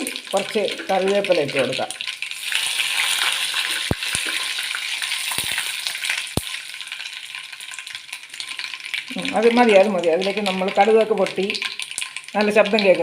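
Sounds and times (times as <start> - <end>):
seeds sizzling in hot oil: 0.0 - 13.0
seeds popping: 2.4 - 4.5, 5.2 - 6.6.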